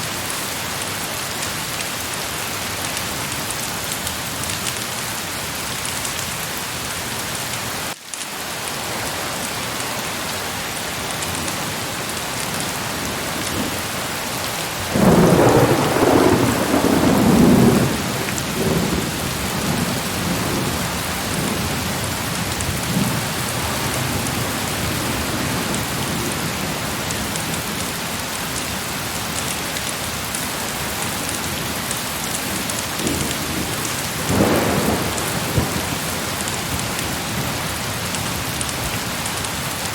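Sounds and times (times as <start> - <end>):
heavy rain hissing: 0.0 - 39.9
thunder rumbling: 14.8 - 26.5, 32.4 - 38.4.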